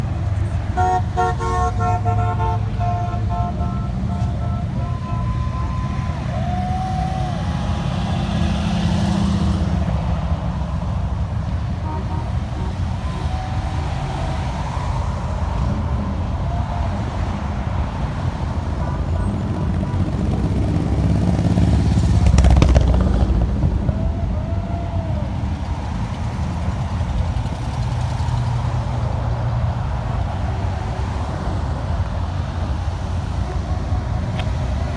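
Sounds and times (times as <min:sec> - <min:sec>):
car horns tooting: 0:00.0 - 0:10.0, 0:11.4 - 0:22.5
street traffic rumbling: 0:00.0 - 0:34.9
vehicle passing: 0:00.0 - 0:34.9.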